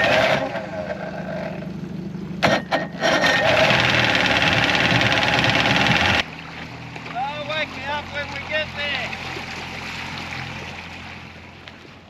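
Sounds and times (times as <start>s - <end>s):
engine running loudly: 0.0s - 11.5s.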